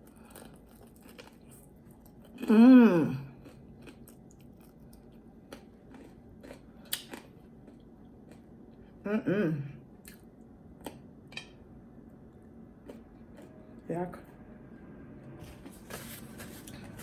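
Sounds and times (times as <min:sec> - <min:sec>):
crunchy chewing: 0:00.0 - 0:02.5, 0:03.3 - 0:09.0
person humming mmm: 0:02.4 - 0:03.4, 0:09.1 - 0:09.8.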